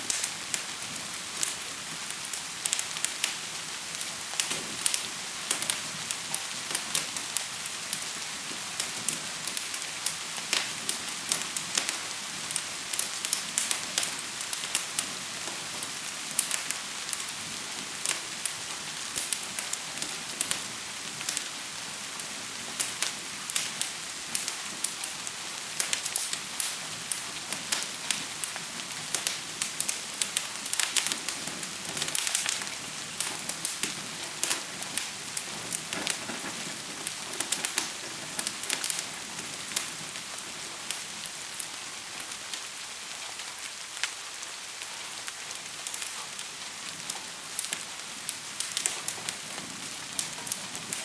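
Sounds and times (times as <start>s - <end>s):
gentle rain falling: 0.0s - 51.0s
wood fire crackling: 0.0s - 51.0s.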